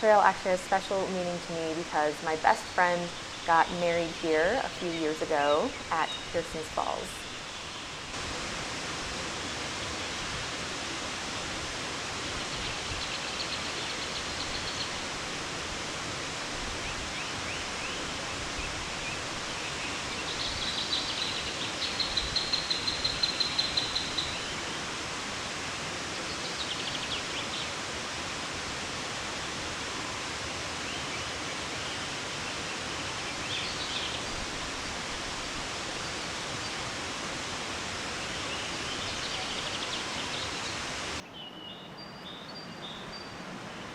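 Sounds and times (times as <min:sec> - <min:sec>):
waterfall rushing over rocks: 0:00.0 - 0:41.2
bird singing trills: 0:02.0 - 0:07.9, 0:19.8 - 0:24.6.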